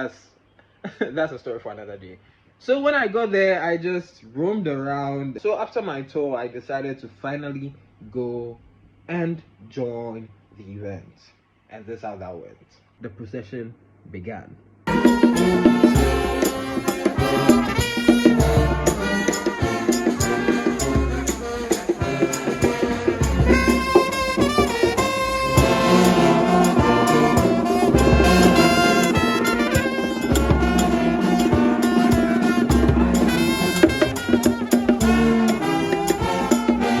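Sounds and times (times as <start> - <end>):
brass music over a beat: 14.9 - 37.0
deep drum hits: 22.0 - 34.6.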